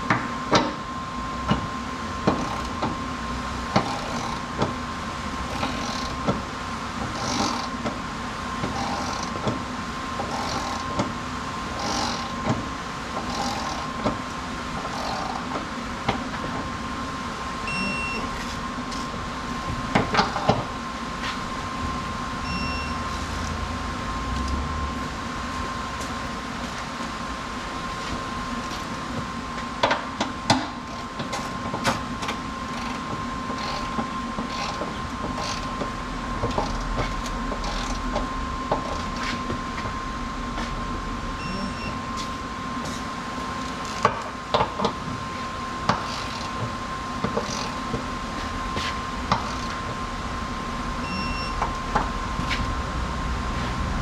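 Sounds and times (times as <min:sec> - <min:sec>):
mechanical hum: 0:00.0 - 0:54.0.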